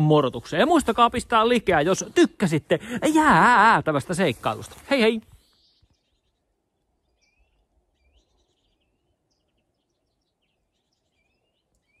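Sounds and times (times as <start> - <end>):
faint bird chirps: 5.2 - 12.0.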